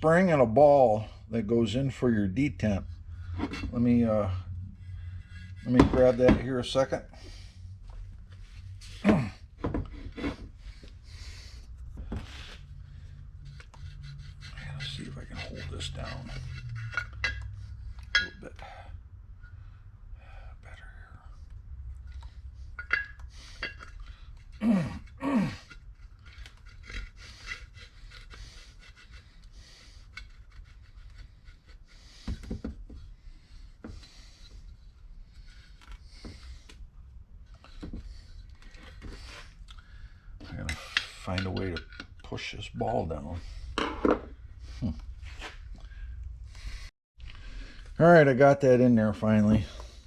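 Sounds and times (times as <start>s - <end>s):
steady low hum: 0.0s - 48.1s
metal parts scraping and knocking: 3.3s - 4.2s, 13.4s - 18.6s, 22.0s - 33.1s, 40.4s - 42.6s, 43.6s - 44.4s.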